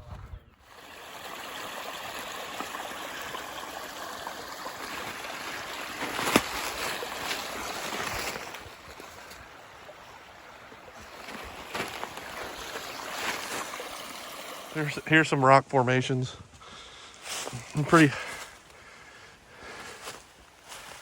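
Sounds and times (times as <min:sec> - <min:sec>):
stream water rushing: 0:00.6 - 0:15.4.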